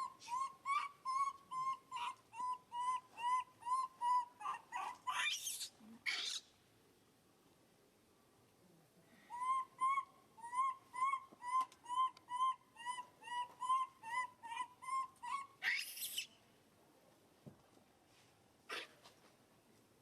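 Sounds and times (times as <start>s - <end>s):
animal calling: 0.0s - 6.5s, 9.3s - 16.3s.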